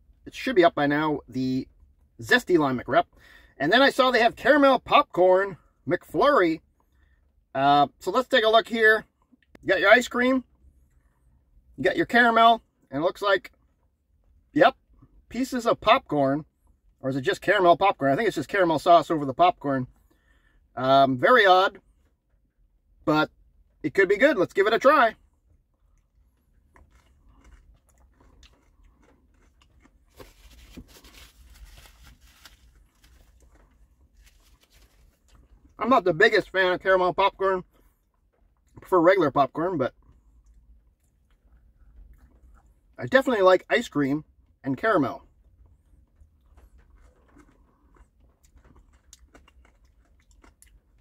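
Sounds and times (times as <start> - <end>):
low steady hum: 0.0 - 51.0
chewing and crunching: 25.2 - 36.5, 39.9 - 43.1, 44.2 - 51.0.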